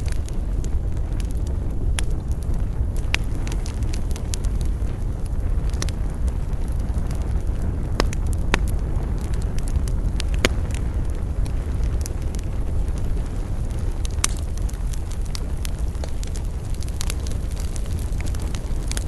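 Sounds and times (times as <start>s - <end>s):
bonfire rumbling: 0.0s - 19.0s
fire crackling and popping: 0.0s - 19.0s.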